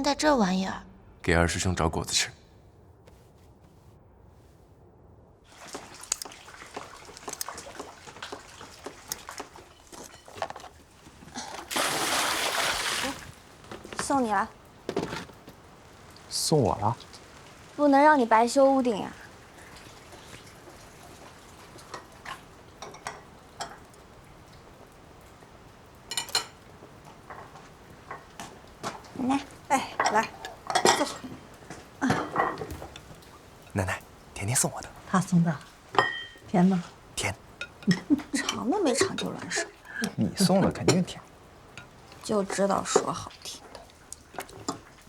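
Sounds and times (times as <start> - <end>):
water splashing and dripping: 5.4 - 45.0
dishes and utensils clinking: 5.6 - 10.8, 19.8 - 24.0, 26.1 - 29.0, 29.9 - 33.8, 35.9 - 36.5, 37.6 - 41.1.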